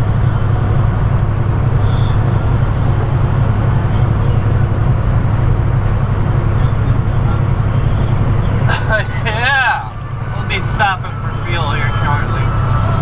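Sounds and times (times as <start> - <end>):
diesel truck engine drone: 0.0 - 13.0
road noise inside cab: 0.0 - 13.0.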